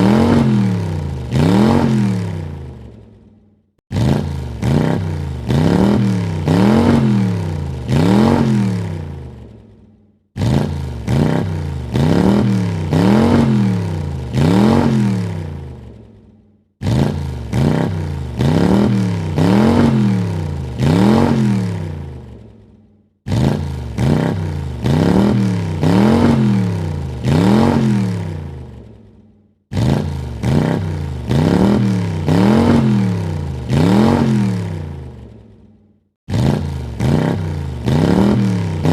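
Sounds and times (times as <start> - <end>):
car engine revving: 0.0 - 3.1, 3.9 - 9.8, 10.4 - 16.1, 16.8 - 22.6, 23.3 - 29.0, 29.7 - 35.4, 36.3 - 38.9.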